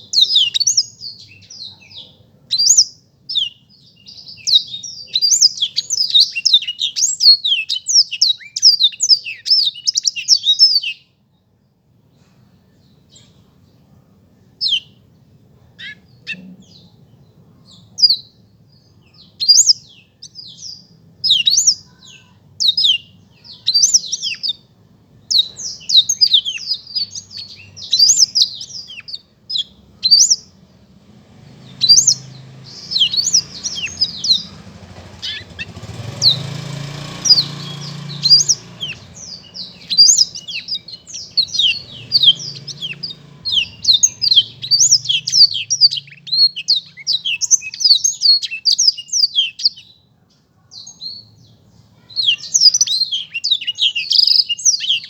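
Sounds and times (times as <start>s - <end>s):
canary singing: 0.0s - 11.2s, 14.4s - 55.0s.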